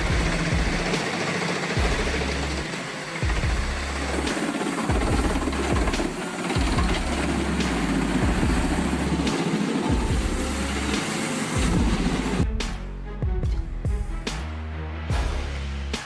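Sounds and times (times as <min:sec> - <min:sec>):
pulsing low bass: 0:00.0 - 0:01.0, 0:01.8 - 0:04.3, 0:04.9 - 0:11.0, 0:11.6 - 0:16.0
heavy machinery grinding din: 0:00.0 - 0:12.5.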